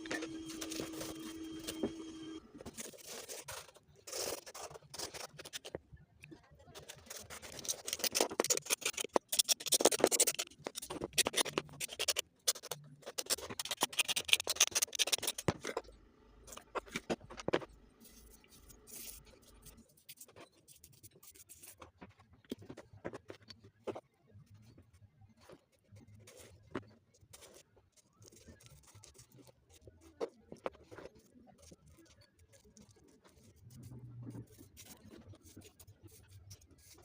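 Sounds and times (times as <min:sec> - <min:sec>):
scraping on shoe sole: 0:00.0 - 0:05.7, 0:06.7 - 0:15.9.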